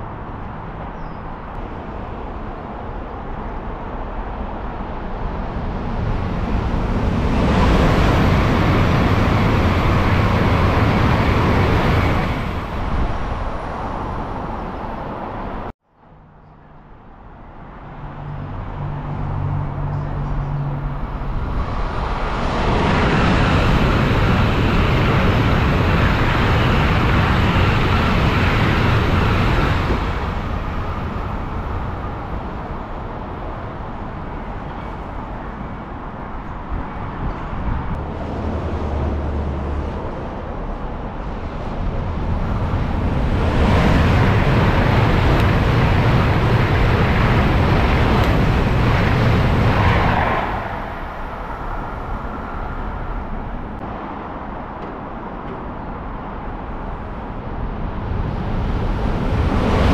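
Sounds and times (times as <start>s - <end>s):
high-speed train passing: 0.0s - 59.9s.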